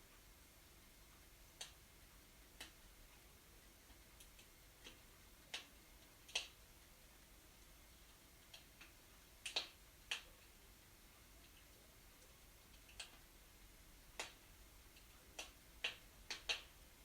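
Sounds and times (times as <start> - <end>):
wood fire crackling: 1.2 - 17.0.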